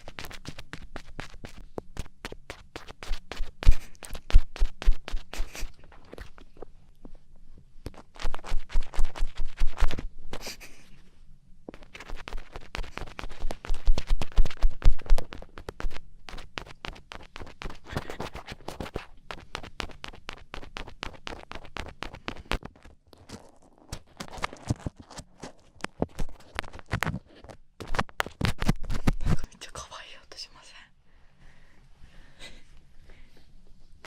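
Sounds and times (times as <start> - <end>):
ear pick scratching microphone: 0.0 - 1.6, 2.2 - 6.6, 7.9 - 10.8, 11.7 - 29.6.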